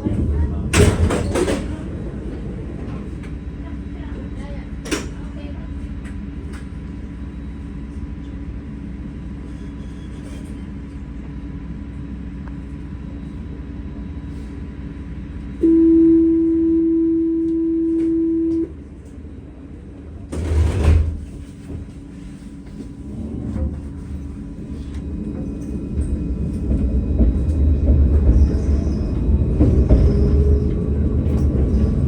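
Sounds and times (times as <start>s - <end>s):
tram rumbling: 0.0s - 32.0s
electronic door warning tone: 15.6s - 18.7s.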